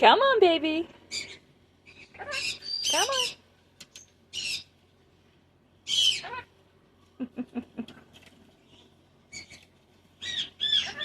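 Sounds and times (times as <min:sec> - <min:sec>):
cockatoo squawking and chattering: 0:01.1 - 0:03.4, 0:04.3 - 0:04.8, 0:05.8 - 0:06.6, 0:08.8 - 0:11.0.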